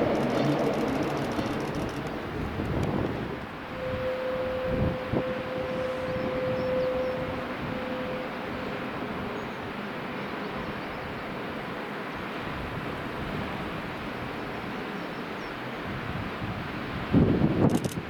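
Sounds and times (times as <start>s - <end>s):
deep rumble: 0.0s - 3.5s
train rolling past: 0.0s - 17.0s.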